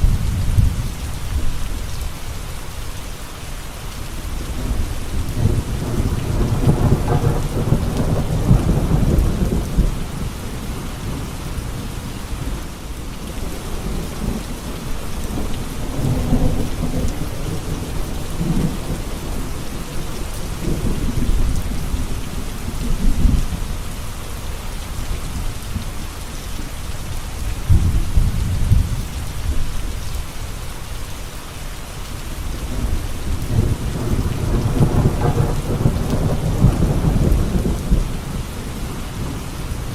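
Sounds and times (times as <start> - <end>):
heavy rain: 0.0 - 39.9
thunder rumbling: 4.4 - 23.9, 27.5 - 29.8, 32.6 - 39.9.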